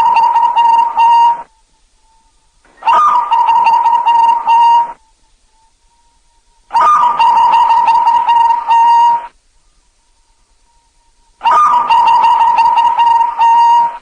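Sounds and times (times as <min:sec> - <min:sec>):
dove cooing: 0:00.0 - 0:01.5, 0:02.7 - 0:05.0, 0:06.7 - 0:09.3, 0:11.4 - 0:14.0.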